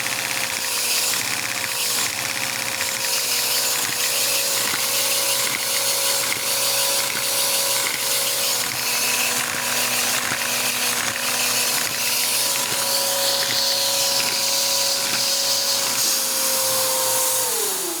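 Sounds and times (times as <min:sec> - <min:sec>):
vacuum engine whining: 0:13.3 - 0:18.0.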